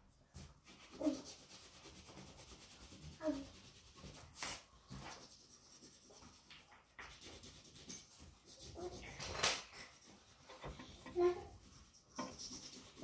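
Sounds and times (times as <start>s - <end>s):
crayon scratching on paper: 0.4s - 13.0s.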